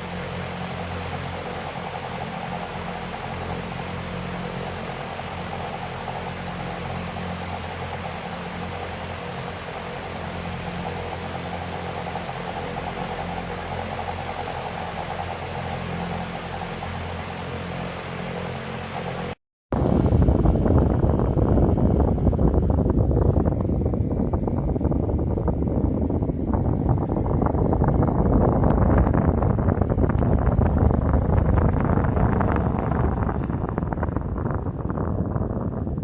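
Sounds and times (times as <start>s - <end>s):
fan running: 0.0s - 36.0s.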